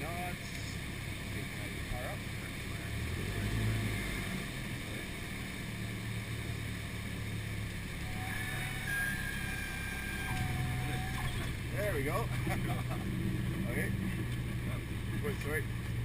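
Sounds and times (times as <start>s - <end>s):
airplane piston engine droning: 4.8s - 16.0s.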